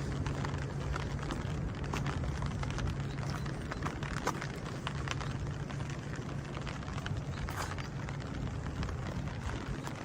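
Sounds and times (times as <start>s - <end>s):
low steady rumble: 0.0s - 10.0s
raindrops tapping: 0.0s - 10.0s.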